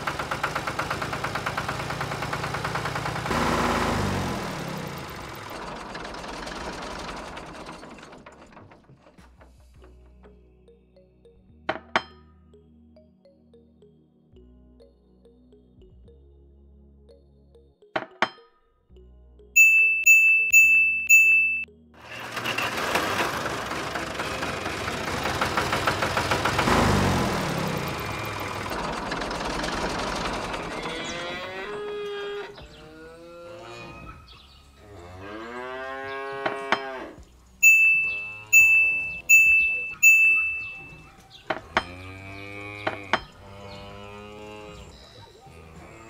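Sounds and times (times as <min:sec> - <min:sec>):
long rattling noise: 0:00.0 - 0:09.2, 0:22.0 - 0:31.3
bright chiming tones: 0:19.5 - 0:21.9, 0:37.6 - 0:41.1
cow mooing: 0:30.7 - 0:37.2, 0:41.6 - 0:46.0.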